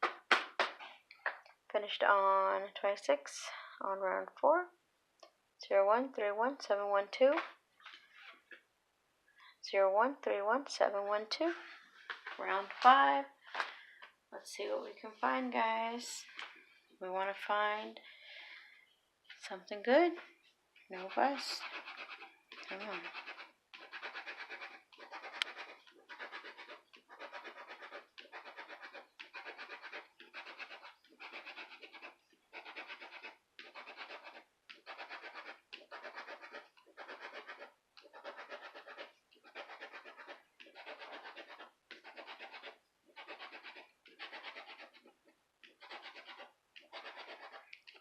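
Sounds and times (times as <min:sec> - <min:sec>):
lottery ticket being scratched: 0:20.9 - 0:47.8.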